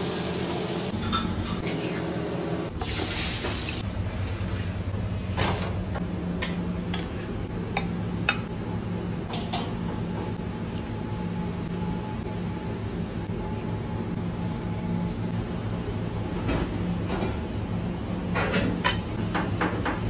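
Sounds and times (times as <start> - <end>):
potatoes sizzling in frying oil: 0.0 - 1.0.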